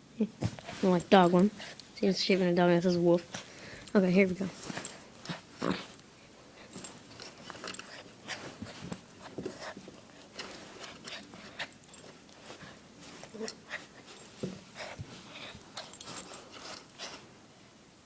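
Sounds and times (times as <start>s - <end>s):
dog grunting: 5.3s - 6.0s.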